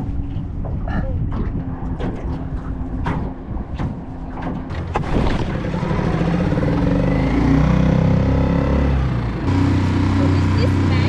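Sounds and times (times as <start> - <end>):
outboard motor revving: 4.6 - 11.0.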